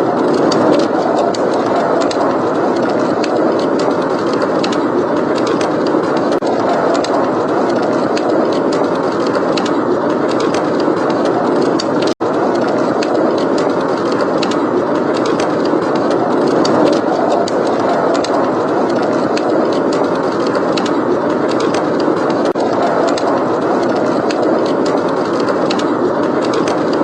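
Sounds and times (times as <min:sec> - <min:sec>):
blizzard wind roaring: 0:00.0 - 0:27.0
wood fire crackling: 0:00.0 - 0:27.0.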